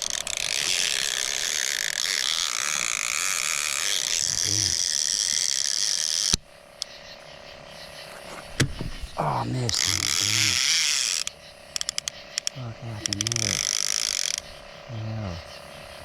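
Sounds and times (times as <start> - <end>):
fishing reel clicker buzzing: 0.0 - 7.0, 9.7 - 14.5
reel click: 4.8 - 7.0, 9.7 - 14.5.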